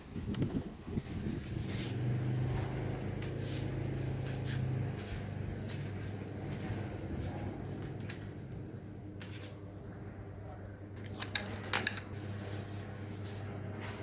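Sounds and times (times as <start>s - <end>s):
small fan motor humming: 0.0s - 14.0s
bird chirping: 5.2s - 7.8s, 9.4s - 11.1s.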